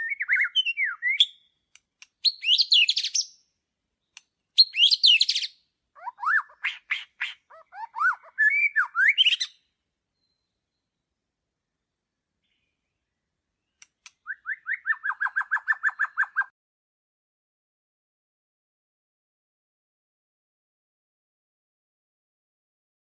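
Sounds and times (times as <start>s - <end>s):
songbird singing: 0.0s - 16.5s.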